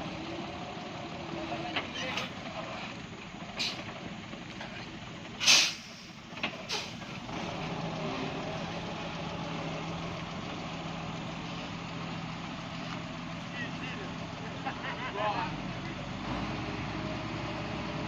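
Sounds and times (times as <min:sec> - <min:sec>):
heavy truck engine running: 0:00.0 - 0:18.0
air brake hiss: 0:05.4 - 0:07.1.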